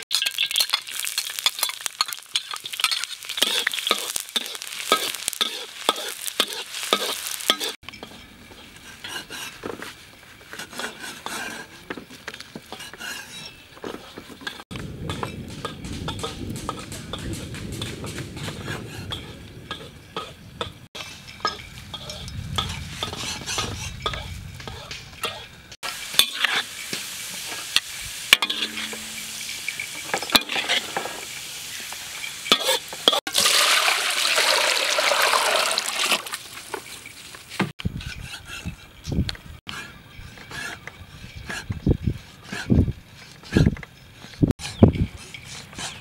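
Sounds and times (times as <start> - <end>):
garlic sizzling in oil: 0.0 - 11.4, 14.4 - 38.4.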